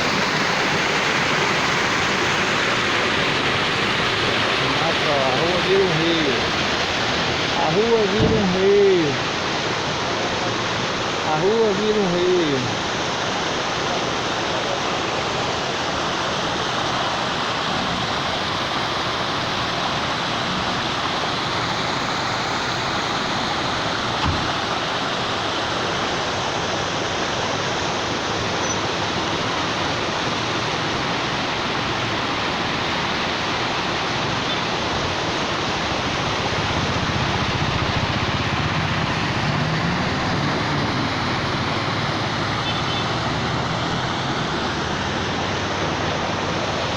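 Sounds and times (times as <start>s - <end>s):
heavy rain pouring: 0.0s - 46.9s
runoff rushing along street: 0.0s - 46.9s
thud: 8.2s - 8.5s, 24.2s - 24.6s.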